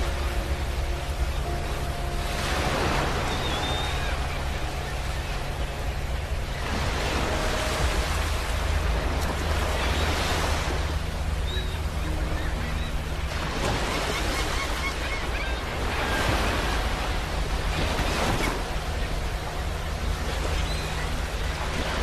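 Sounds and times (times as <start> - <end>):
surf rumbling on shore: 0.0 - 22.0.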